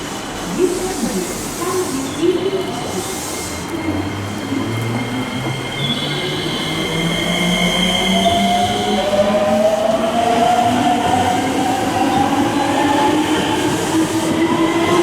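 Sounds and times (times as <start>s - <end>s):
electric train wheel squeal: 1.9s - 9.0s.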